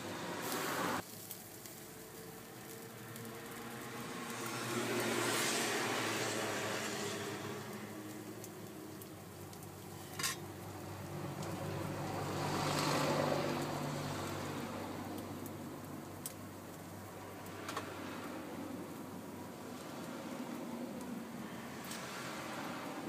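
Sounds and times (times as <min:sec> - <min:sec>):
food sizzling in a pan: 0:00.0 - 0:08.6.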